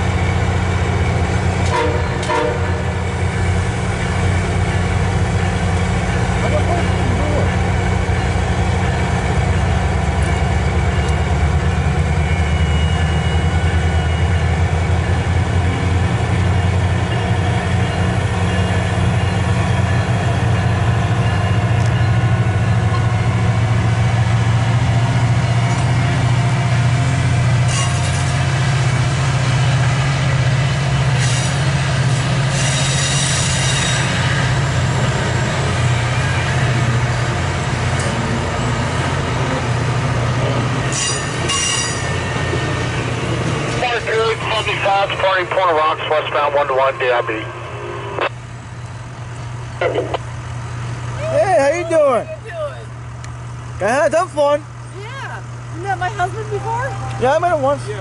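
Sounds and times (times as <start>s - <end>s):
diesel locomotive engine hum: 0.0s - 58.0s
train hisses and squeaks: 27.6s - 28.6s, 31.0s - 36.6s, 40.8s - 42.8s.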